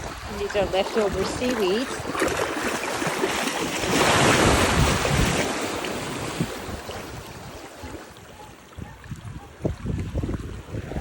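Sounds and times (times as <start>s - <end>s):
wave breaking on shore: 0.0s - 8.3s
wind buffeting microphone: 0.0s - 11.0s.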